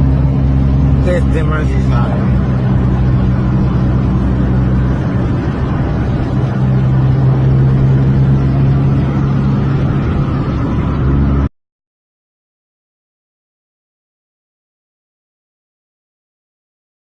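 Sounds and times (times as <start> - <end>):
off-road vehicle engine running: 0.0 - 11.5
vehicle movement noise: 0.0 - 11.5.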